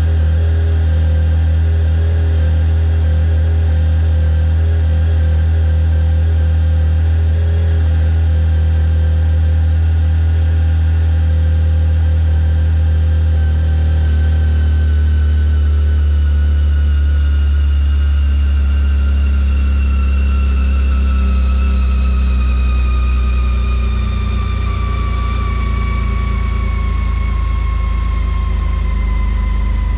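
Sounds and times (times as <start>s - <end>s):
high whine dropping in pitch: 0.0s - 29.9s.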